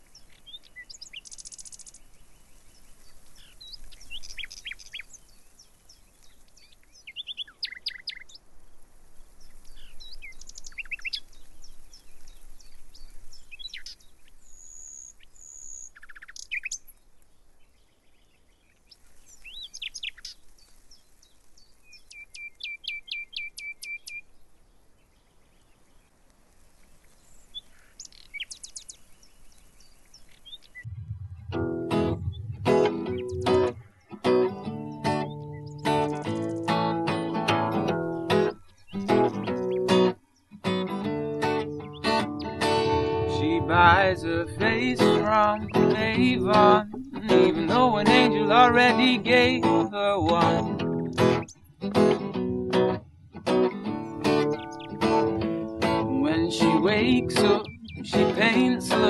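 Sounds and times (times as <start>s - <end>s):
bird trill: 0.0s - 2.6s, 3.4s - 5.5s, 6.6s - 8.4s, 9.7s - 17.0s, 22.0s - 24.3s, 27.3s - 40.5s, 41.1s - 51.8s, 53.9s - 59.0s
songbirds singing and chirping: 0.0s - 59.0s.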